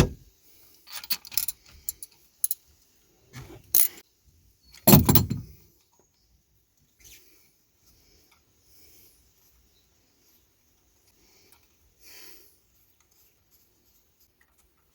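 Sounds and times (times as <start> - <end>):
metal clinking and clanking: 4.8 - 5.6.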